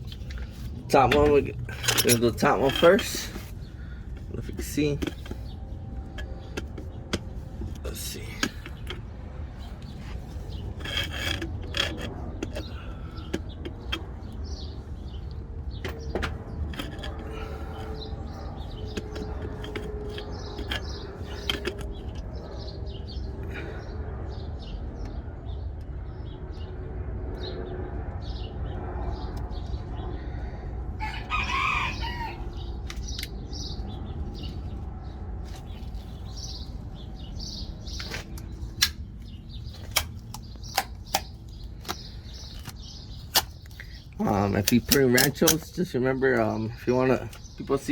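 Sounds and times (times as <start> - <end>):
steady low rumble: 0.0 - 47.9
loud bird call: 31.0 - 33.7.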